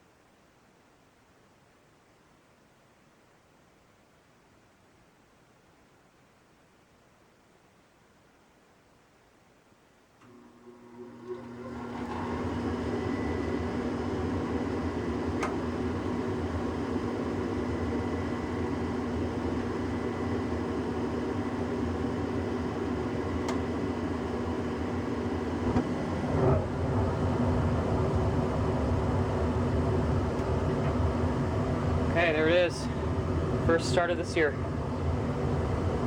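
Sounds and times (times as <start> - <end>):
furnace fan humming: 10.2 - 36.0
gas burners rumbling: 10.2 - 36.0.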